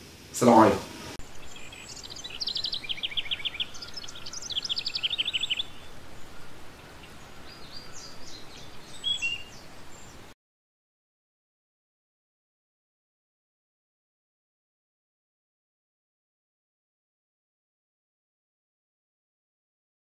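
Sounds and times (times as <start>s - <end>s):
steady hiss: 0.0s - 10.4s
small birds chirping: 0.9s - 10.4s.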